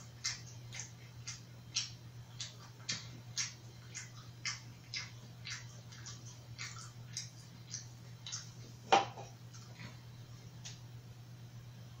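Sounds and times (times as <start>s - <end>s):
person chewing food: 0.0s - 10.8s
wet mouth clicks: 0.1s - 8.6s.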